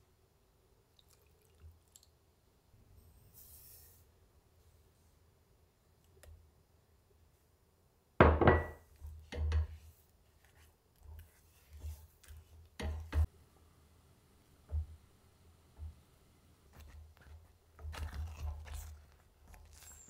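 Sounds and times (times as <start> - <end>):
spatula stirring thick paste: 8.8 - 13.3, 16.6 - 20.0.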